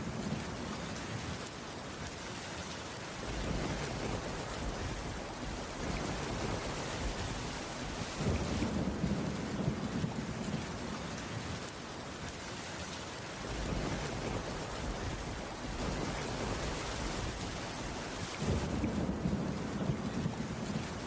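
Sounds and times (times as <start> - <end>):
rain on a wooden roof: 0.0 - 21.0
distant thunder rumble: 3.2 - 10.8, 13.4 - 21.0.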